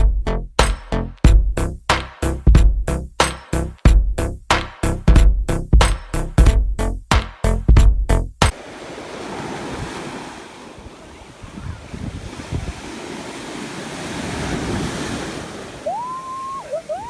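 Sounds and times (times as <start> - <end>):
high rising call: 8.5 - 17.0
ocean surf washing: 8.5 - 17.0
wind buffeting microphone: 8.5 - 17.0.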